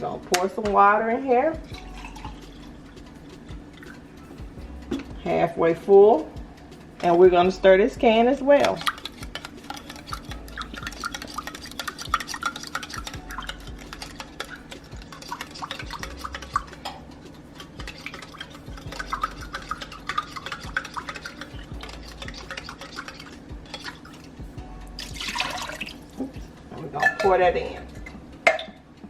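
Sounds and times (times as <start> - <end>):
utensil scraping in metal can: 8.6 - 16.8, 17.5 - 24.3.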